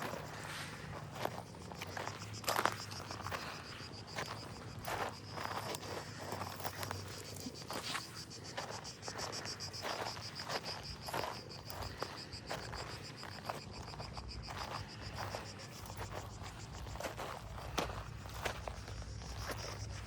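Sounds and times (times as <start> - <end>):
footsteps crunching: 0.0 - 20.0
insect chirring: 0.0 - 20.0.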